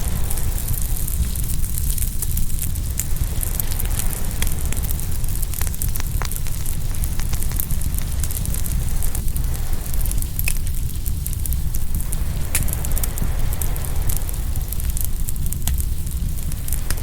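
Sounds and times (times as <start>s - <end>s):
low rumble: 0.0s - 17.0s
wood fire crackling and popping: 0.0s - 17.0s.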